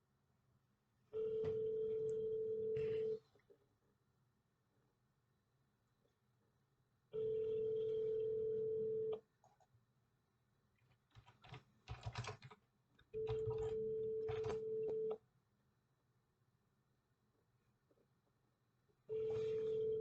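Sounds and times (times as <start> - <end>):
telephone ringback tone: 1.2 - 3.2, 7.2 - 9.2, 13.2 - 15.2, 19.1 - 20.0.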